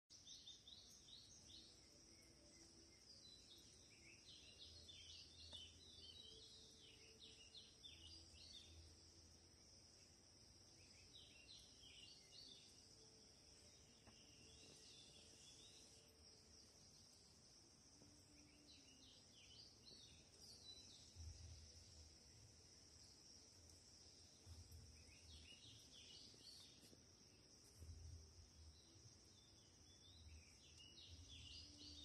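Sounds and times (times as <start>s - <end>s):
faint bird chirps: 0.1s - 32.0s
steady high-pitched hiss: 0.1s - 32.0s.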